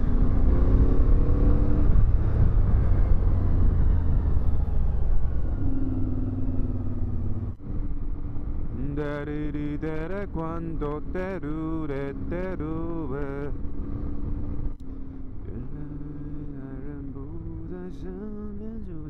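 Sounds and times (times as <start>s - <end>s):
wind rumble on microphone: 0.0s - 14.8s
motorcycle engine running: 0.0s - 19.0s.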